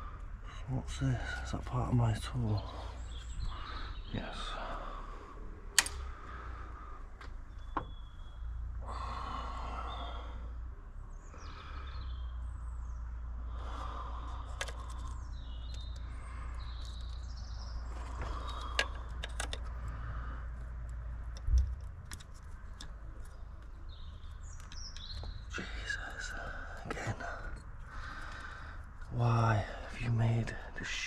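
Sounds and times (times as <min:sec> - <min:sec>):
small birds chirping: 0:00.0 - 0:31.0
steady low rumble: 0:00.0 - 0:31.0
sharp clicks: 0:05.7 - 0:06.4, 0:14.3 - 0:17.4, 0:18.2 - 0:29.2.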